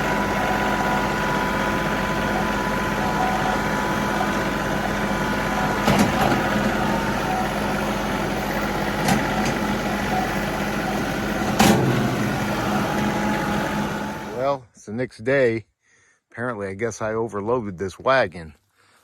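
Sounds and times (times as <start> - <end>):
tractor diesel engine running: 0.0 - 14.6.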